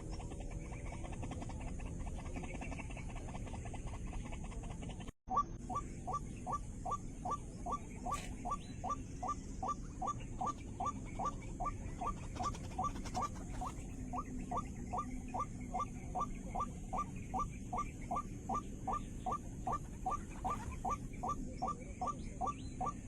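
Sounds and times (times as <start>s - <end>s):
waterhen calling: 5.3s - 23.0s.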